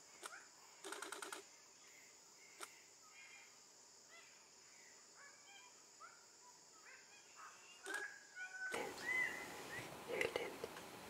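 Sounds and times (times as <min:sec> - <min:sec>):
steady high hiss: 0:00.0 - 0:11.0
faint bird chirps and whistles: 0:01.8 - 0:09.9.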